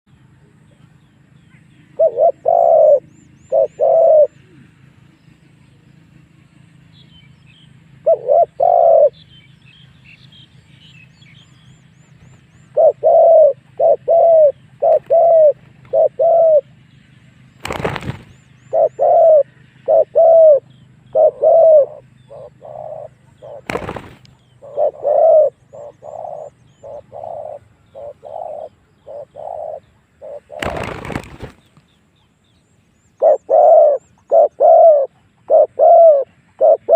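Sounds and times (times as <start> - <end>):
small birds chirping: 0.1 - 36.9
dove cooing: 1.9 - 4.7, 8.0 - 9.2, 12.6 - 16.7, 17.6 - 31.6, 33.2 - 36.9.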